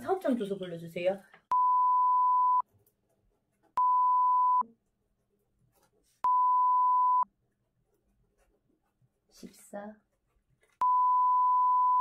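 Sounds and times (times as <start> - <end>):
censor beeps: 1.5 - 2.6, 3.8 - 4.6, 6.2 - 7.3, 10.8 - 12.0.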